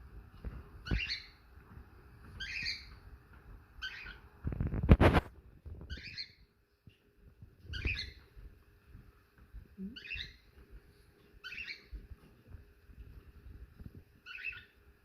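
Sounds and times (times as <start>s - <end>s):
bird calling: 11.4s - 11.9s.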